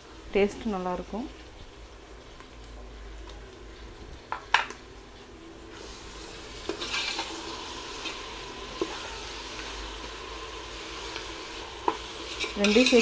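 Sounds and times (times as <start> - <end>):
onions sizzling in hot oil: 0.0 - 13.0
spoon scraping and clinking pot: 6.7 - 7.4, 11.8 - 13.0.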